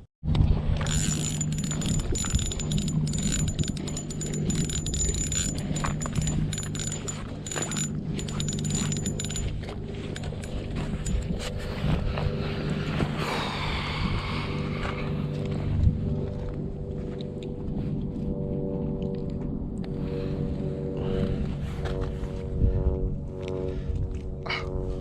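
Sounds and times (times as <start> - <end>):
small motor humming: 0.4 - 15.8
metallic clicking and rattling: 0.8 - 11.6.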